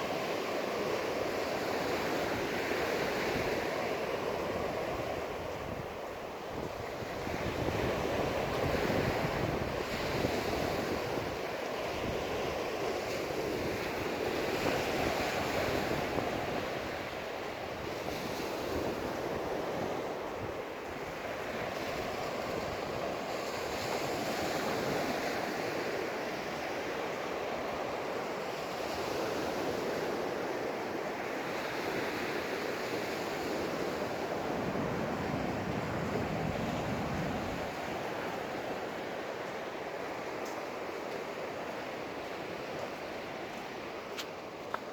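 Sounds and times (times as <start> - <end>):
wind buffeting microphone: 1.6 - 25.6, 31.6 - 40.3.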